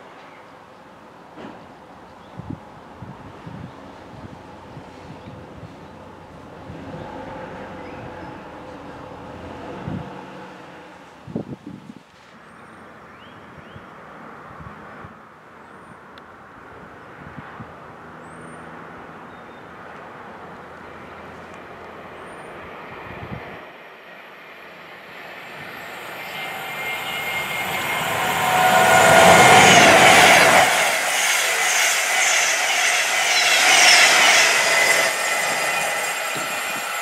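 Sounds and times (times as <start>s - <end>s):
train passing at speed: 0.0s - 11.6s, 20.0s - 37.0s.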